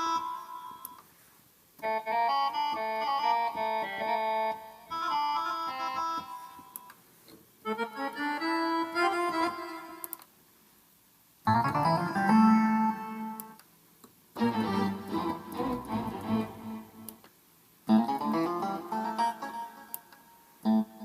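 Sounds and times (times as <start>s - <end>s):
keyboard playing short phrases: 14.4s - 17.1s.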